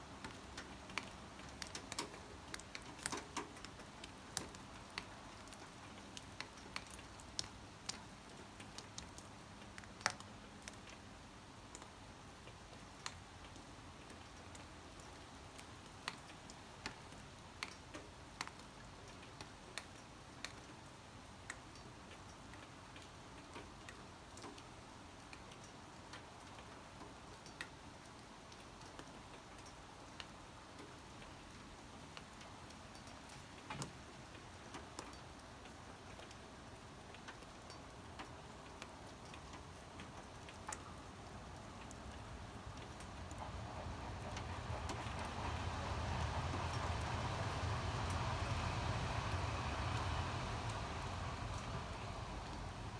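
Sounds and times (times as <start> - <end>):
faint rain hiss: 0.0 - 52.9
raindrops tapping on hard surface: 0.2 - 11.0, 12.7 - 20.8, 41.8 - 52.9.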